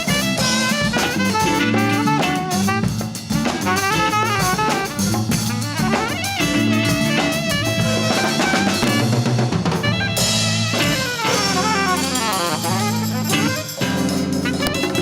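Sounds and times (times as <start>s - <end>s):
bass line: 0.0s - 15.0s
drum kit beat: 0.0s - 15.0s
wavering lead melody: 0.0s - 15.0s.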